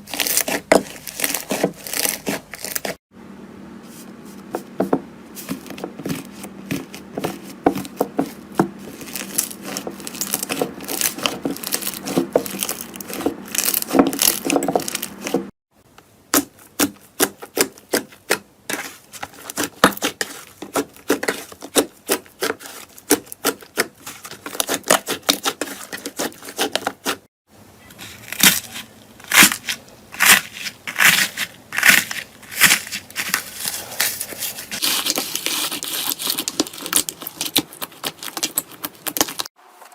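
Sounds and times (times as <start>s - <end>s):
slime crackling and popping: 8.9s - 15.3s, 34.8s - 39.5s.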